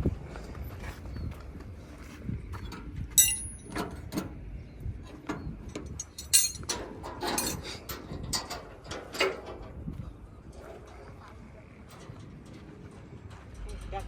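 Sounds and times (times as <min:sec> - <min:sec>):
metal clinks and knocks: 0:03.2 - 0:04.2, 0:05.3 - 0:09.6.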